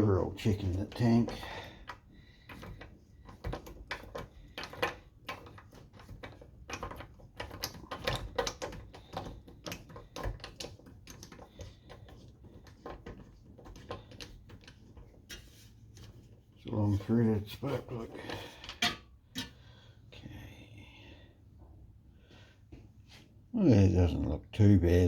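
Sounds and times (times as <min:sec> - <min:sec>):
engine parts and tools clicking: 0:00.4 - 0:15.4.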